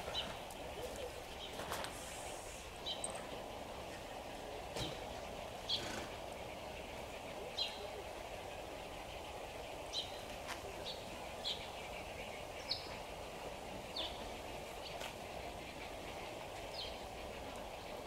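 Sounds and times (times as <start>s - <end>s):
steady low background noise: 0.0s - 18.0s.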